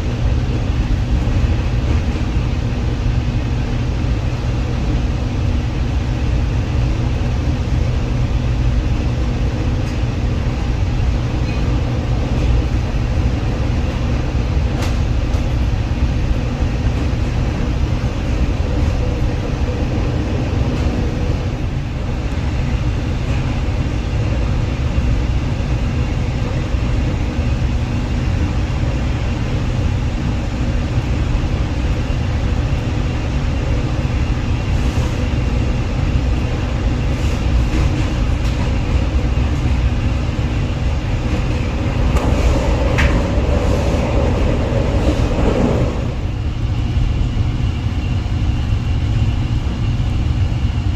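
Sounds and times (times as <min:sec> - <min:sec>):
steady hum: 0:00.0 - 0:50.9
train rumbling: 0:00.0 - 0:50.9.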